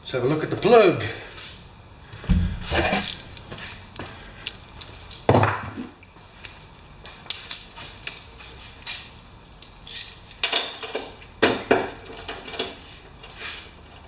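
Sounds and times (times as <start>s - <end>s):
sharp knocks: 2.2s - 3.5s
metal tools clinking: 2.7s - 3.6s.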